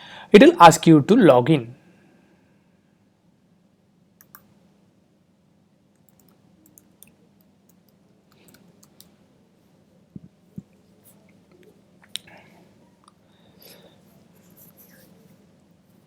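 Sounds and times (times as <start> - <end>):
computer keys clicking: 4.2 - 4.5, 5.9 - 9.2.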